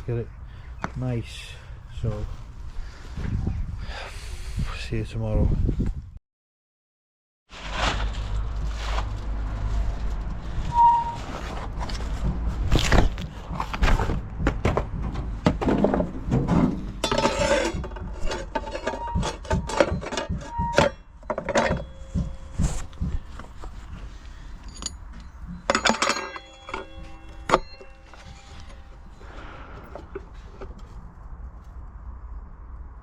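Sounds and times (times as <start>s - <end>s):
hard objects clinking and knocking: 15.5s - 23.5s, 24.5s - 29.2s
short ringing metallic tones: 18.7s - 22.8s, 24.5s - 29.4s.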